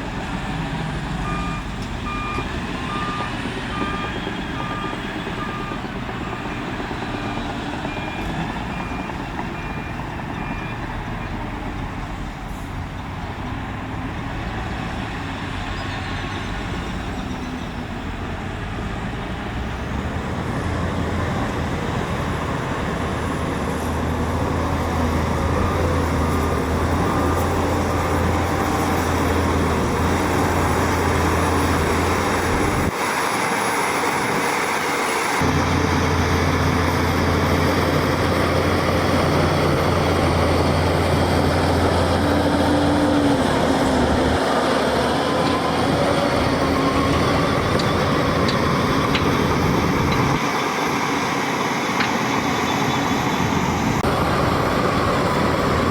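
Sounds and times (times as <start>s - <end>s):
heavy diesel engine running: 0.0s - 55.9s
reversing alarm beeping: 1.2s - 11.8s.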